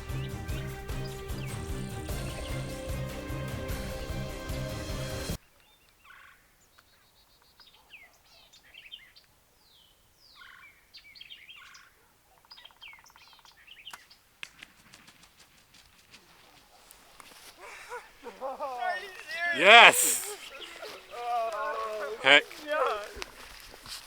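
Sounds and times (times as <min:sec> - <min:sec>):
background music: 0:00.0 - 0:05.4
birds chirping: 0:17.9 - 0:23.4.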